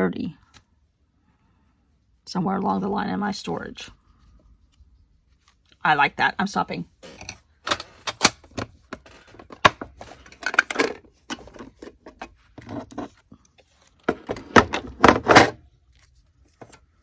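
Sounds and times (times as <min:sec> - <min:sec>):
paper rustling: 0:15.8 - 0:17.0.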